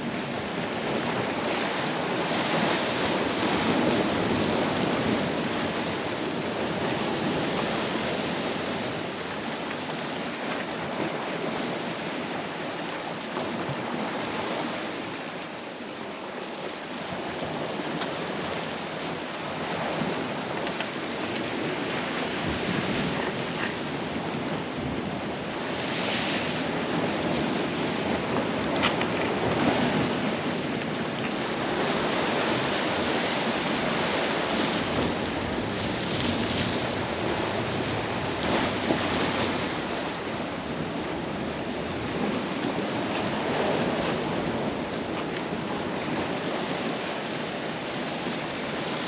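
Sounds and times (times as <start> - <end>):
sea surf washing ashore: 0.0 - 49.0
wind buffeting microphone: 17.0 - 49.0.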